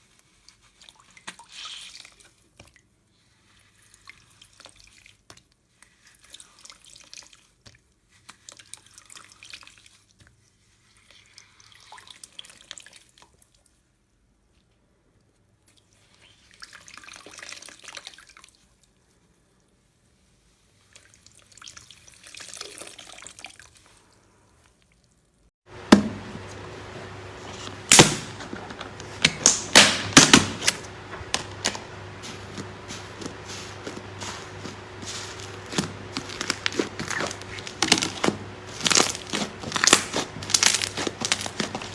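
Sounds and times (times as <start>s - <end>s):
slime clicking and popping: 35.7s - 41.8s.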